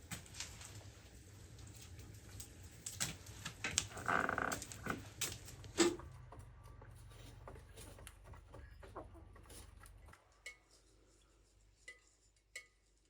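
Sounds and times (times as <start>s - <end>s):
chickens clucking: 8.2s - 10.0s.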